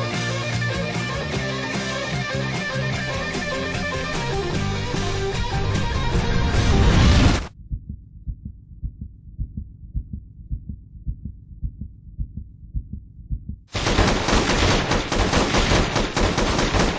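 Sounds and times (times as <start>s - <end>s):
guitar music: 0.0s - 7.3s
muffled low thuds: 2.8s - 13.7s
dense gunfire: 13.7s - 16.9s.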